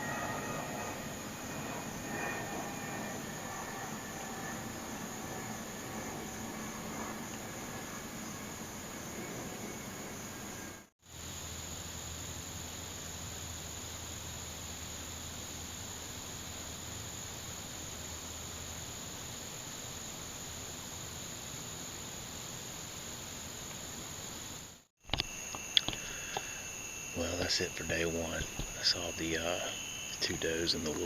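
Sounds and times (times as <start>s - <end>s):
insect chorus drone: 0.0s - 31.0s.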